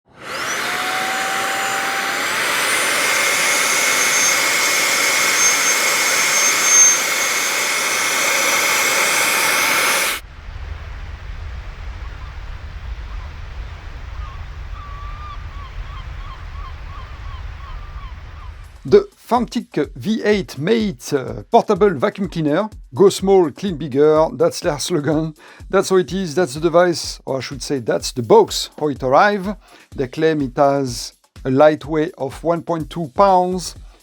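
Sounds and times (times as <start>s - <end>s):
vacuum cleaner high whine: 0.1s - 10.2s
low rumble: 9.3s - 18.9s
faint chirping: 11.8s - 18.8s.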